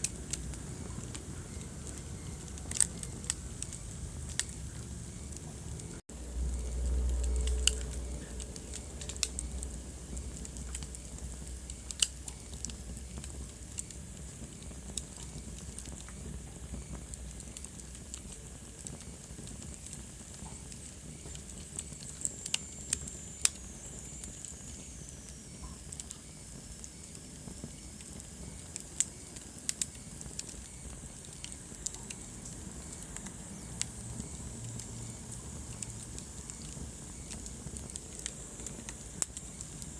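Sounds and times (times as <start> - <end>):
low rumble: 0.0 - 12.0
wood fire crackling: 0.0 - 39.9.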